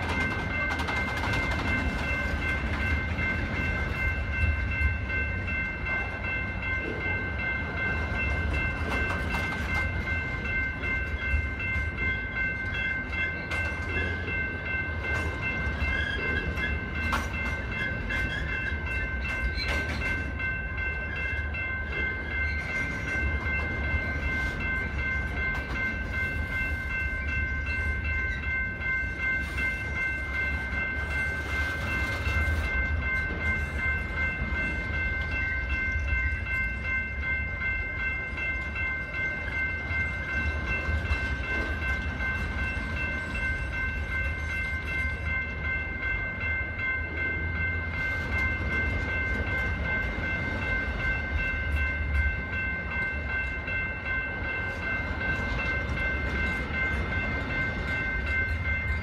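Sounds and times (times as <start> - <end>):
steady high ringing tone: 0.0 - 59.0
wheels rumbling on rail: 0.0 - 59.0.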